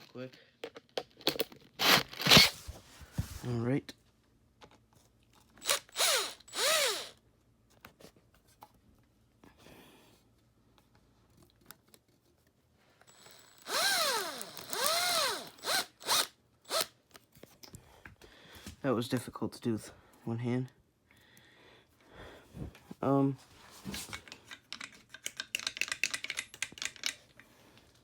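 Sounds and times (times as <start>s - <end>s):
power drill spinning: 1.8s - 2.8s, 5.6s - 7.2s, 13.0s - 16.9s.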